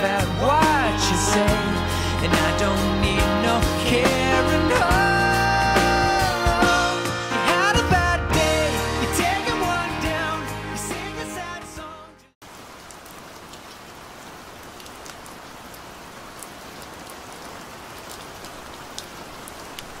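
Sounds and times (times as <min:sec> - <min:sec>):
music: 0:00.0 - 0:12.4
raindrops ticking: 0:12.4 - 0:20.0
steady rainfall: 0:12.4 - 0:20.0.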